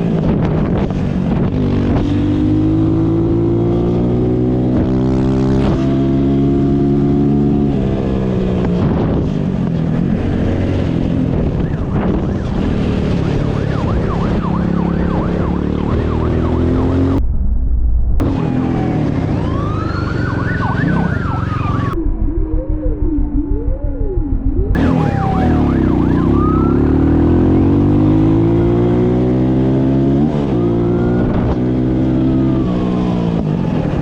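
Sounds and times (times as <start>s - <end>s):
motorcycle engine accelerating: 0.0s - 34.0s
faint wailing siren: 13.2s - 17.2s, 18.2s - 29.2s, 30.2s - 34.0s.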